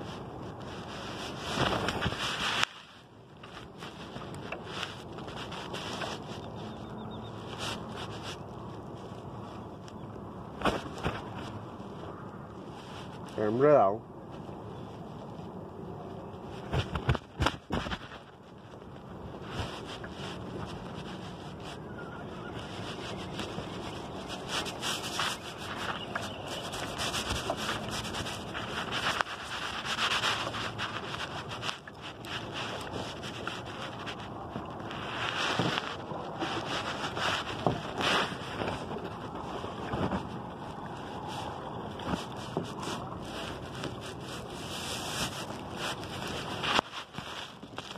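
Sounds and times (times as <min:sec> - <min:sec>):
water lapping against kayak: 0:00.0 - 0:47.9
wind buffeting microphone: 0:14.0 - 0:47.9.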